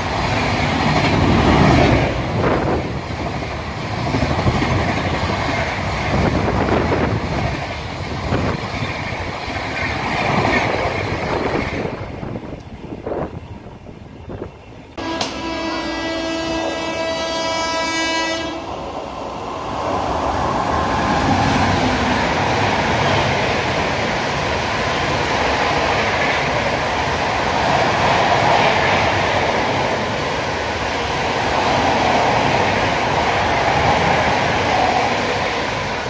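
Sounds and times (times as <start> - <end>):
passenger train passing: 0.0 - 36.0
train horn: 15.0 - 18.7.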